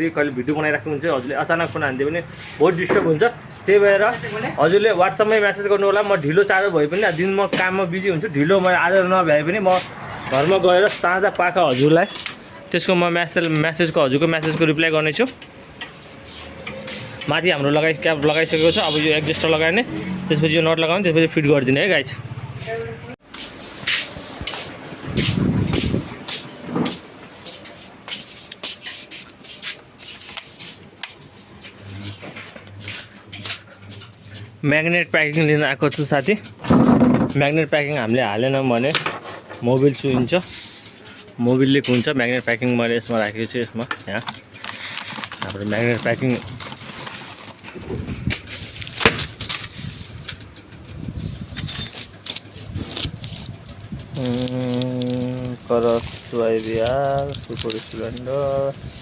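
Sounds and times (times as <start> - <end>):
metal tools clattering: 9.8 - 16.0, 48.4 - 52.6
gaskets rustling and clattering: 35.9 - 59.0.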